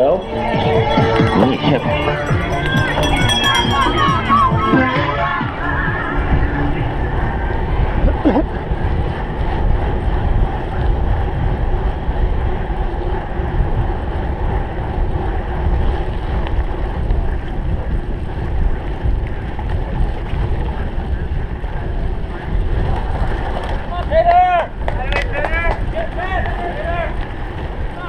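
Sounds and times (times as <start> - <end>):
wind buffeting microphone: 0.0 - 28.0
bike rolling over rough ground: 6.8 - 28.0.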